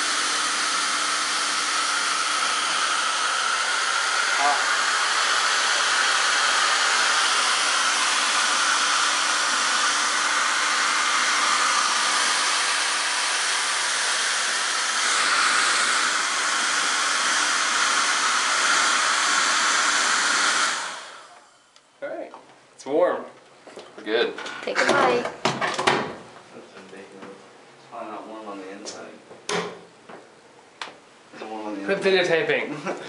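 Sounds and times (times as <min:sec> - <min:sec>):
hair dryer blowing: 0:00.0 - 0:21.6.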